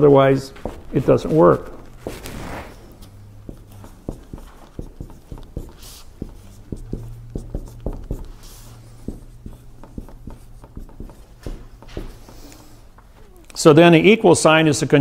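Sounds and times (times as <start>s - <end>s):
marker squeaking: 0.6s - 13.7s
marker tapping on whiteboard: 3.0s - 13.0s.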